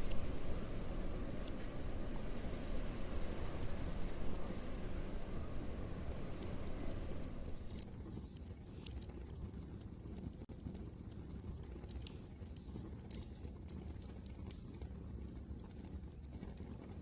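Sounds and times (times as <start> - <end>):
low rumble of wind: 0.0 - 8.3
wood fire crackling: 0.0 - 8.4.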